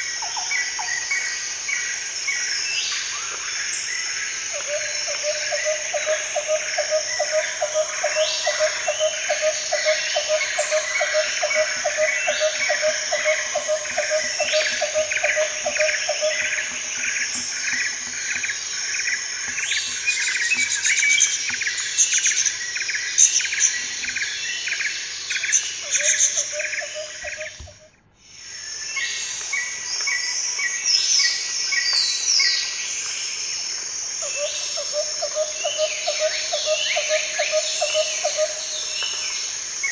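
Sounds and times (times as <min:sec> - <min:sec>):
insects chirping: 0:00.0 - 0:39.9
birds calling: 0:05.8 - 0:28.0.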